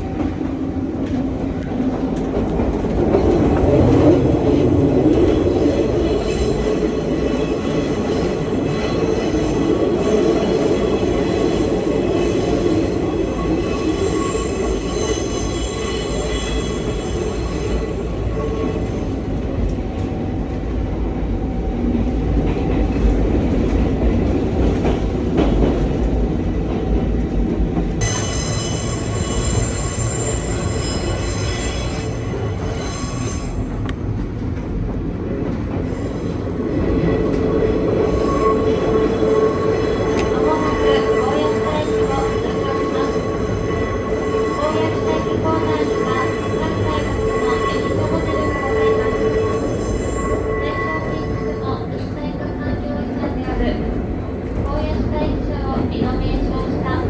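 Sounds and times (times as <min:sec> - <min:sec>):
train wheels rumbling on rail: 0:00.0 - 0:57.0
faint high wheel squeal: 0:28.0 - 0:33.7, 0:37.9 - 0:52.0.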